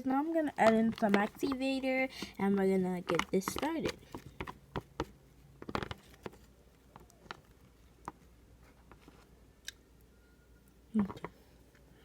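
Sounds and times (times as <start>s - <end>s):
utensil clicks and taps: 0.4s - 8.2s.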